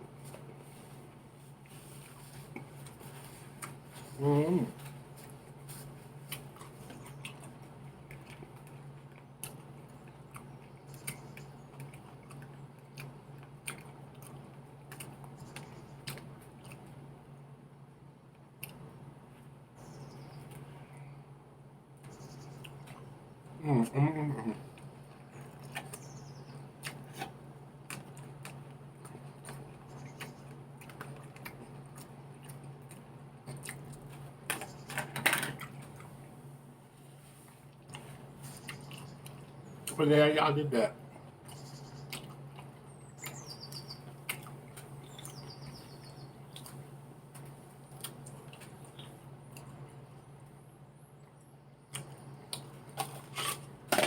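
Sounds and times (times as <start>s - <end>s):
steady low hum: 0.0s - 54.0s
chewing salad crunches: 0.2s - 17.0s, 24.7s - 34.9s, 41.0s - 50.2s, 51.4s - 54.0s.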